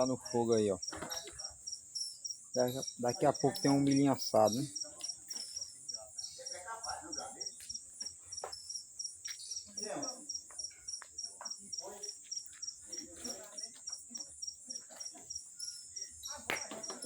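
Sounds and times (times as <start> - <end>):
crickets chirping: 0.0 - 17.0
high insect trill: 0.0 - 17.0.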